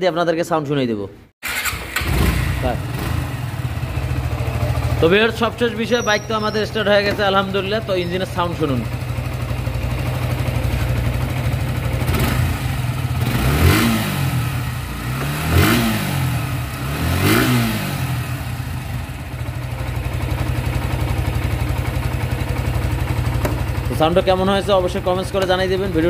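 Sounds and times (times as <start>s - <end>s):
motorcycle engine idling and revving: 1.4s - 26.0s.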